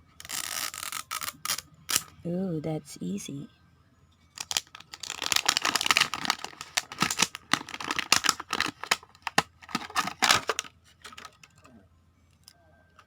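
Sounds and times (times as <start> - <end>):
plastic and foil wrapping crinkling: 4.4 - 11.5.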